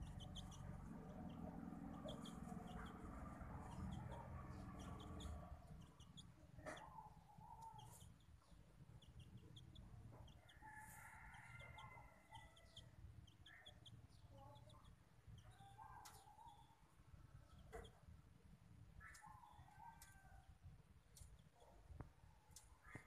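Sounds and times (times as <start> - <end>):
low rumble: 0.0 - 5.9
high bird chirps and squeaks: 4.8 - 8.2.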